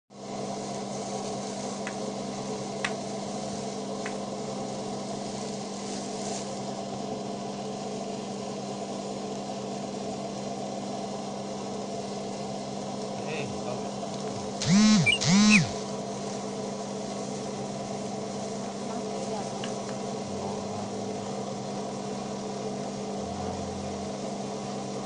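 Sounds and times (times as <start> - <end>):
dough mixer motor hum: 14.0 - 25.0.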